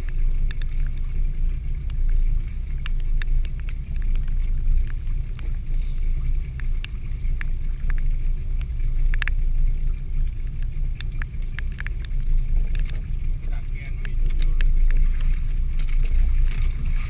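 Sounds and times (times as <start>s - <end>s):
boat engine rumble: 0.0s - 17.0s
rain ticking on boat: 0.0s - 17.0s.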